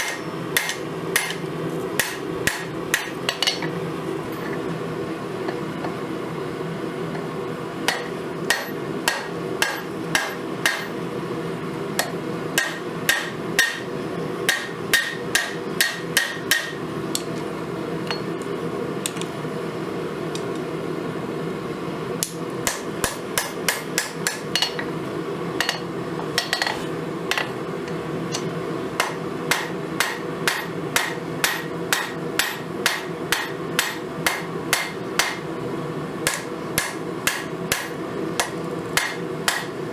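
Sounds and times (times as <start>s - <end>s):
hammer striking steel on anvil: 0.0s - 1.4s, 2.0s - 3.7s, 7.9s - 11.0s, 12.0s - 13.9s, 14.5s - 16.8s, 22.2s - 24.9s, 28.4s - 35.4s, 36.3s - 39.8s.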